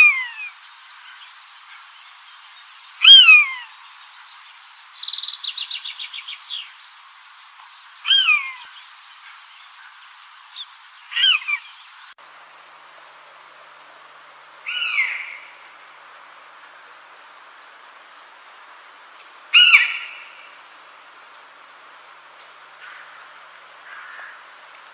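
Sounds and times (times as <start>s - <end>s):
bird high downward-sliding call: 3.0s - 3.8s, 8.0s - 8.8s, 10.6s - 11.8s, 14.7s - 15.6s, 19.5s - 20.6s.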